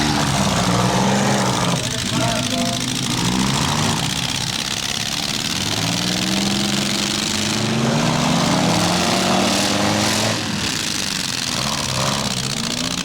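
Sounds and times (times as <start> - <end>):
car engine revving: 0.0 - 13.0
small car engines running: 0.0 - 13.0.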